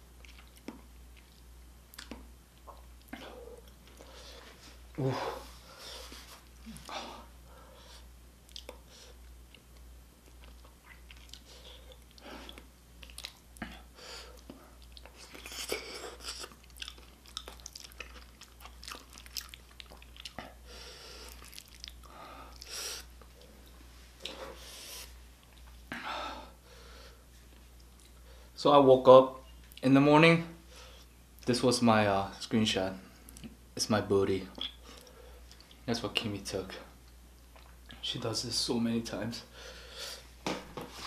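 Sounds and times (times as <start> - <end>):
mouth chewing with wet clicks: 0.2 - 4.0, 8.4 - 20.6, 21.2 - 22.8, 34.5 - 35.9, 37.0 - 38.0.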